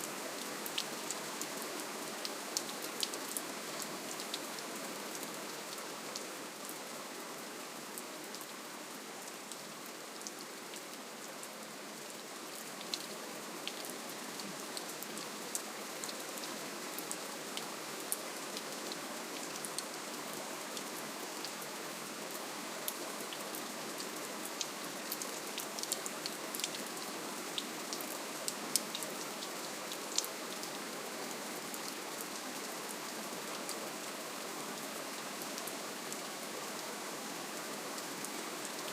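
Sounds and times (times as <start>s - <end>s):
gentle rainfall: 0.0s - 38.9s.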